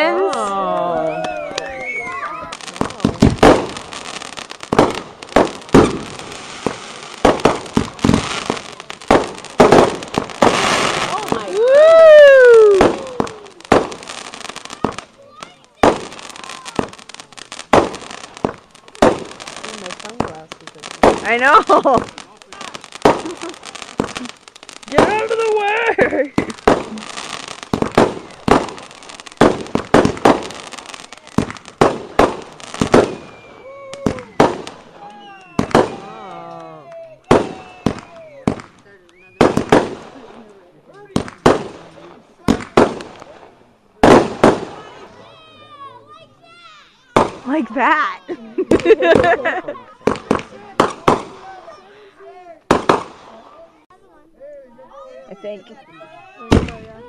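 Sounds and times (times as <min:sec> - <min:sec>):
fireworks banging: 0:00.0 - 0:45.6, 0:46.9 - 0:53.9, 0:56.4 - 0:57.0
fireworks crackling: 0:00.0 - 0:57.0
falling whistle: 0:01.0 - 0:02.5, 0:33.0 - 0:36.1.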